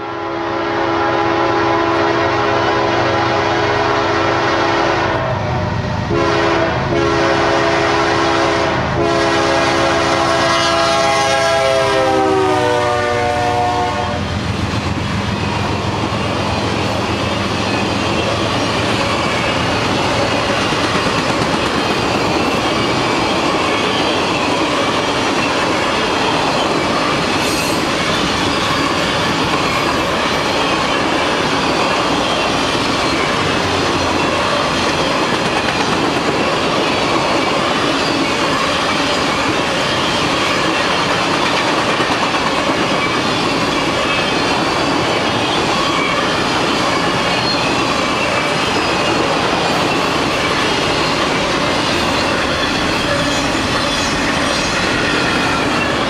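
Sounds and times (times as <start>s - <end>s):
locomotive air horn blasts: 0.0s - 5.5s, 6.1s - 14.3s
train cars rumbling past: 0.3s - 56.0s.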